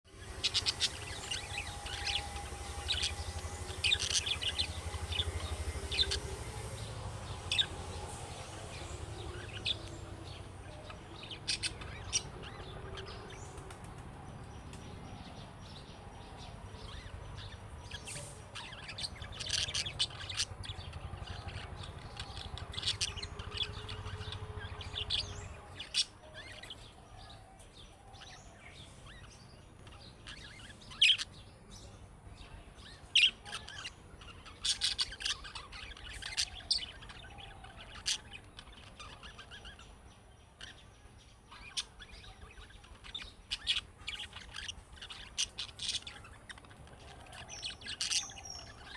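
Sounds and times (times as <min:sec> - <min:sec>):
low hum: 0:00.1 - 0:26.5.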